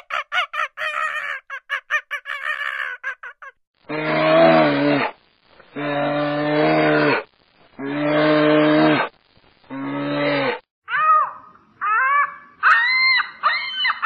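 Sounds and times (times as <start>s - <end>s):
high-pitched animal calls: 0.0s - 3.5s, 10.9s - 14.0s.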